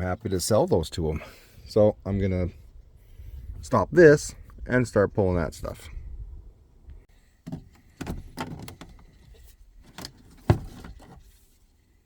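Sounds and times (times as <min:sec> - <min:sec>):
knocks and rattles of parts: 0:07.4 - 0:11.4.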